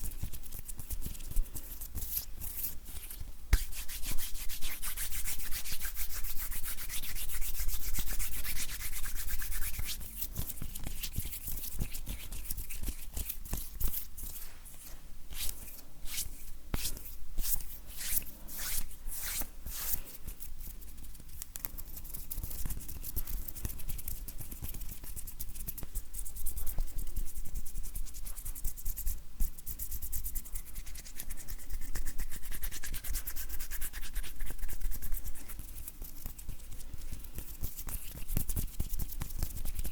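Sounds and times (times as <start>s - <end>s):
hands rubbing together: 0.7s - 20.2s.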